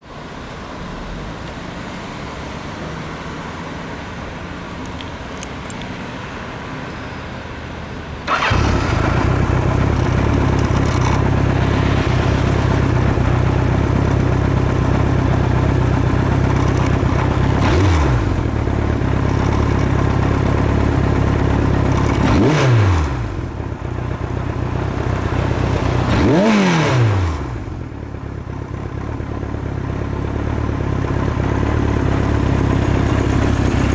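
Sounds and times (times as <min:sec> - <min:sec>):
motorcycle engine starting: 0:04.4 - 0:05.9, 0:08.1 - 0:33.9
motorcycle engine idling: 0:07.8 - 0:26.7, 0:27.6 - 0:33.9
engine revving: 0:08.2 - 0:23.6, 0:24.6 - 0:27.8.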